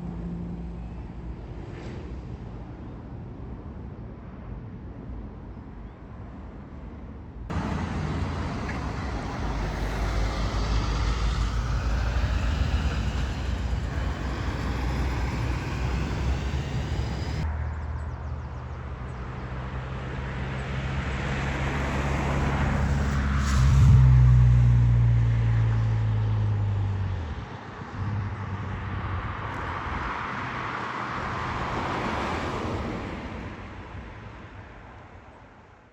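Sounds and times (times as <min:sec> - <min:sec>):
heavy vehicle engine: 0:07.5 - 0:17.5
road traffic passing: 0:07.5 - 0:35.7.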